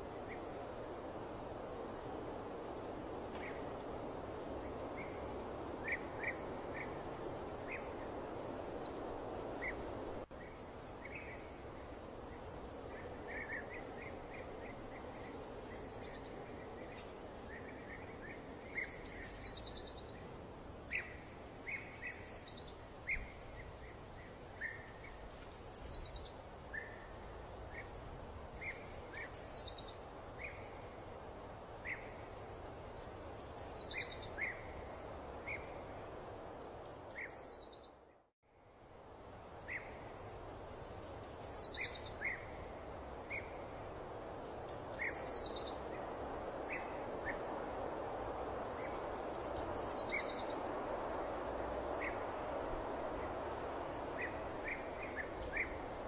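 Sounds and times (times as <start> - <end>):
steady rushing noise: 38.9 - 56.0.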